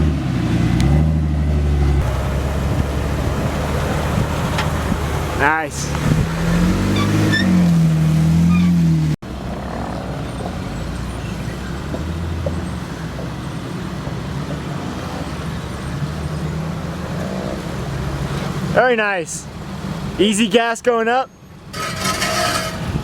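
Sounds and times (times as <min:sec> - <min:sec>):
off-road vehicle engine under load: 0:00.0 - 0:23.0.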